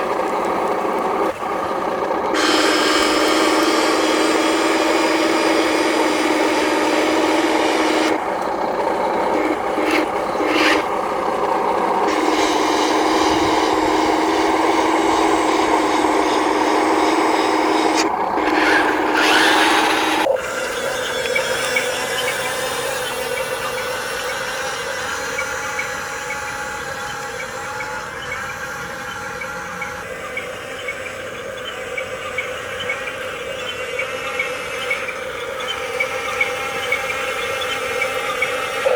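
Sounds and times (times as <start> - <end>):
toy motors whining and grinding: 0.0 - 38.9.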